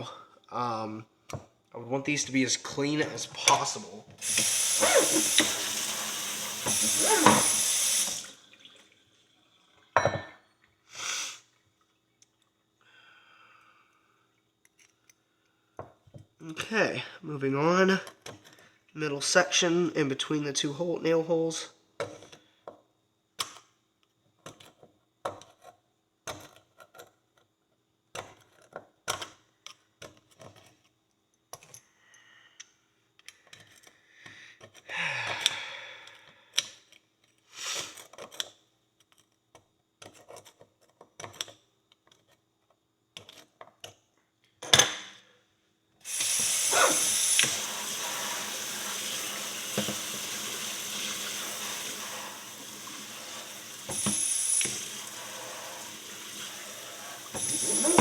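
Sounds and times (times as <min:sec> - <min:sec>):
pick scraping horseshoe: 0:04.2 - 0:05.6, 0:57.2 - 0:58.0
water jet spraying: 0:04.2 - 0:08.4, 0:46.1 - 0:58.0.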